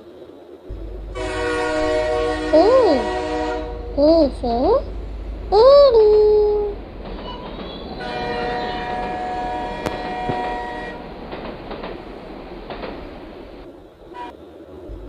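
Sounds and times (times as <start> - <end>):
train horn chord: 0.7 - 11.3, 14.1 - 14.4
train running: 0.7 - 15.0.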